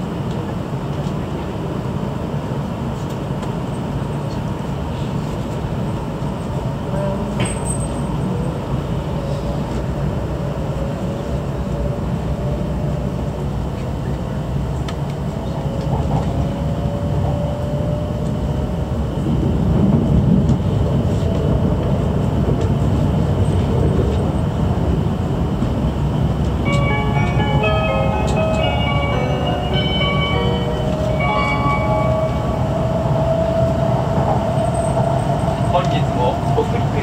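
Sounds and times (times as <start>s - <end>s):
train cabin rumble: 0.0s - 37.0s
short chime melody: 26.7s - 32.6s.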